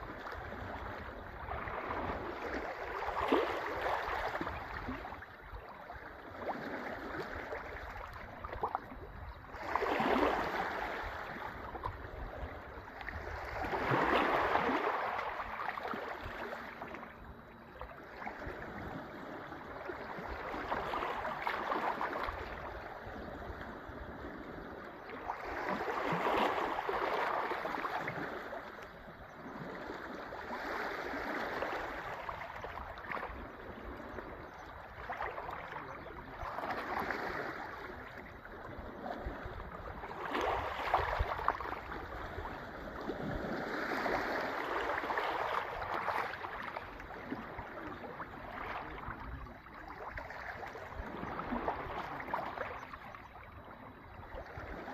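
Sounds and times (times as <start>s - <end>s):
sea waves washing on shore: 0.0s - 53.2s.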